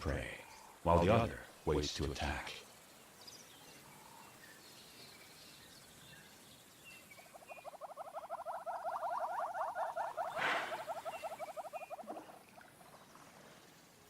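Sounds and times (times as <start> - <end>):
faint bird chirps: 2.3 - 14.0
pulsing animal call: 7.2 - 13.0.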